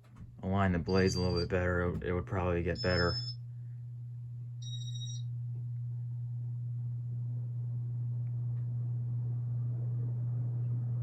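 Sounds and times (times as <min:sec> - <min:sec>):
ceiling fan motor humming: 0:00.0 - 0:11.0.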